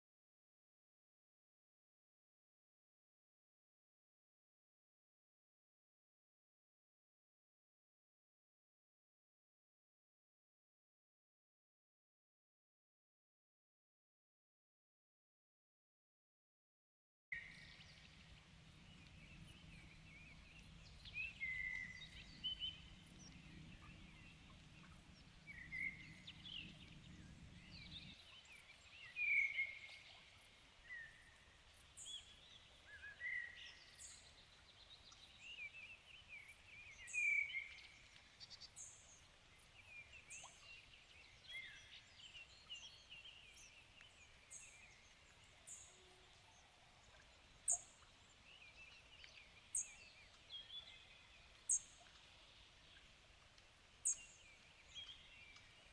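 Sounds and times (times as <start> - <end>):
faint low hum: 17.4 - 29.2
songbirds singing: 17.4 - 55.9.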